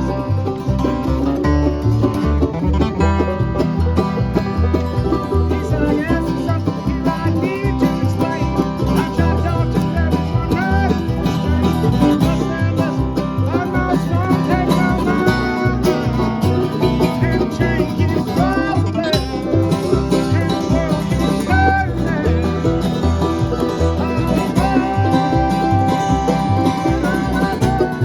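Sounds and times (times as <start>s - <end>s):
banjo picking: 0.0s - 28.0s
bluegrass band playing: 0.0s - 28.0s.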